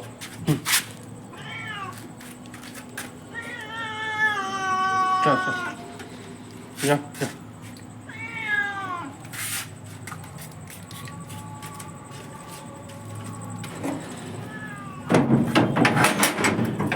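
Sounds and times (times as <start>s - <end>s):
cat meowing: 1.3s - 2.0s, 3.3s - 5.8s, 8.1s - 9.2s, 14.3s - 15.2s.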